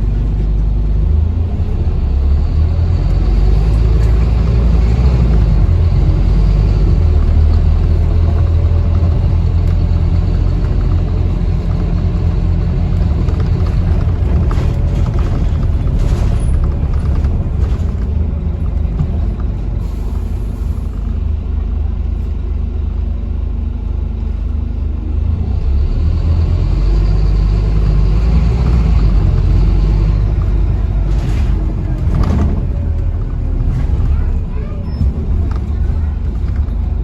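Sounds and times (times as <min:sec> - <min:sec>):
bus engine and road rumble: 0:00.0 - 0:37.0
knocks and rattles: 0:06.9 - 0:20.0, 0:28.6 - 0:37.0.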